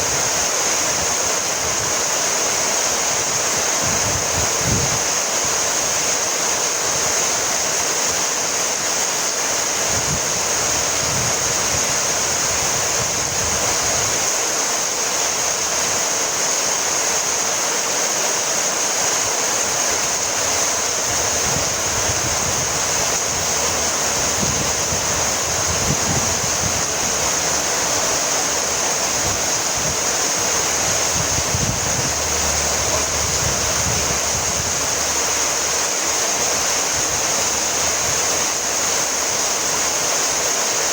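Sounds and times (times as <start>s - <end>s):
low rumbles of wind: 0.0s - 14.6s, 19.2s - 39.8s
heavy rain falling: 0.0s - 40.9s.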